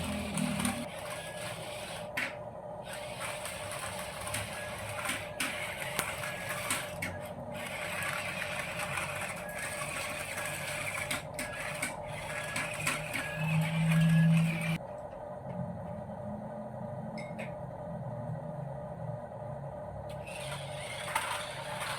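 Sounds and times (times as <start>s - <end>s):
toy truck electric motor whirring: 0.0s - 14.8s, 20.1s - 21.9s.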